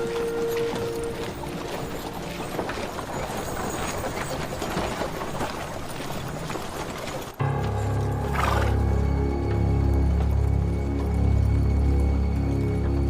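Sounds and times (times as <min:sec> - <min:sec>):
busy noisy drama music: 0:07.4 - 0:13.0
low sustained music with deep bass: 0:07.4 - 0:13.0.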